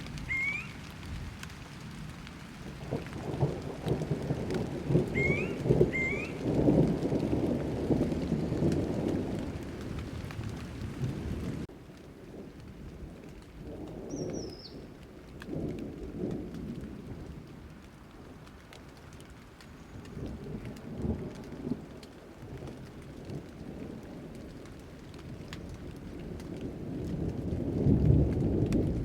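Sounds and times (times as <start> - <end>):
rolling thunder: 0.0 - 17.7, 20.1 - 29.0
steady rain: 0.0 - 29.0
bird chirp: 0.3 - 0.8, 5.2 - 6.4, 14.1 - 14.9.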